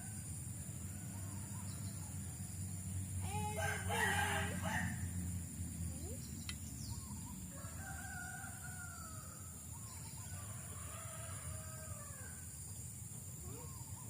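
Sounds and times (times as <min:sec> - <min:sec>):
roosters crowing: 0:03.1 - 0:05.3, 0:07.4 - 0:12.6.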